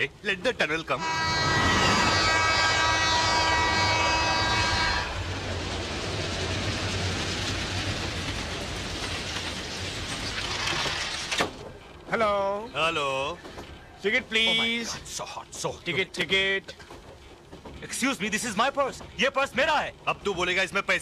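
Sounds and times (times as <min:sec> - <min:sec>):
train rumbling along track: 0:00.0 - 0:21.0
train horn: 0:01.0 - 0:05.4.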